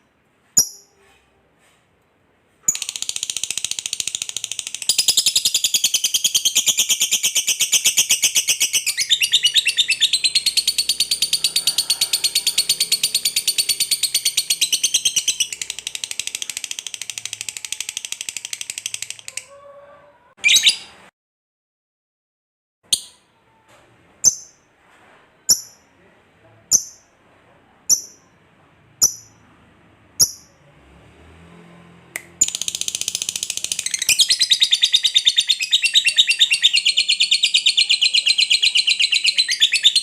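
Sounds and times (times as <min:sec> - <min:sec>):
lovebird chattering: 0:02.7 - 0:19.5, 0:24.2 - 0:24.6, 0:27.9 - 0:28.3, 0:29.0 - 0:29.4, 0:30.2 - 0:30.5, 0:32.4 - 0:40.0.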